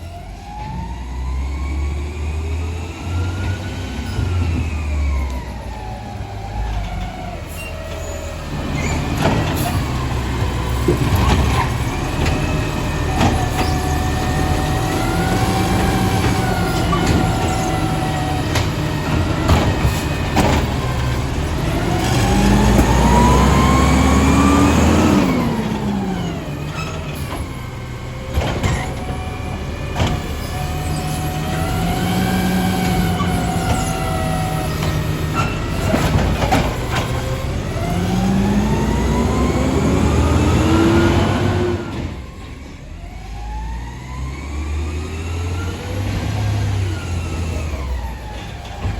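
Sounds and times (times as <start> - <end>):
garbage truck diesel engine: 0.0 - 48.9
metal clanks and knocks: 15.7 - 21.9, 28.3 - 30.9, 32.8 - 37.5.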